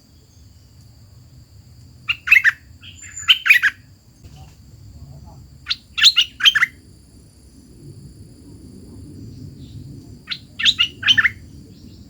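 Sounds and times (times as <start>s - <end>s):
songbird whistling: 2.1s - 3.8s, 5.7s - 6.8s, 9.6s - 11.9s.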